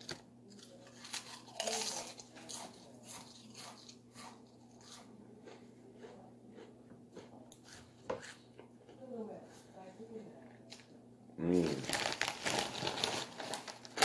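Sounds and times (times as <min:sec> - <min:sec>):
faint steady hum: 0:00.0 - 0:14.0
person chewing crunchy food: 0:00.1 - 0:08.7.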